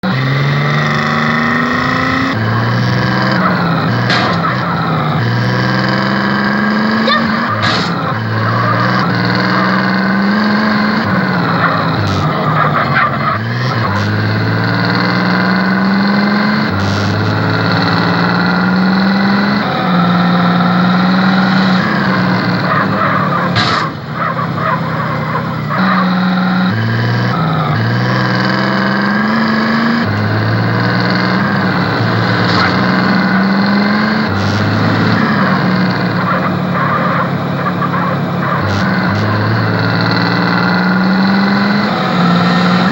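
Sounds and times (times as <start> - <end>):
car engine revving lightly: 0.0 - 42.9.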